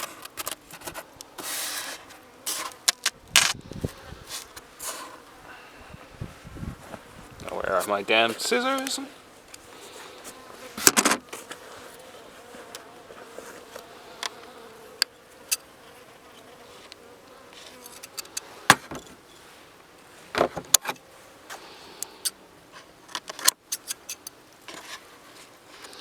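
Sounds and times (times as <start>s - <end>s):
honeybees buzzing: 0.6s - 20.4s
insulation wrap and tape clicks: 2.8s - 3.6s.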